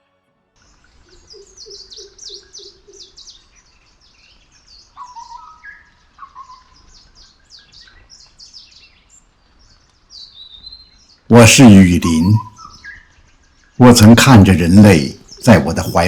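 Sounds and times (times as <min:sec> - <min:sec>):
low repeated bird note: 0:11.3 - 0:12.5.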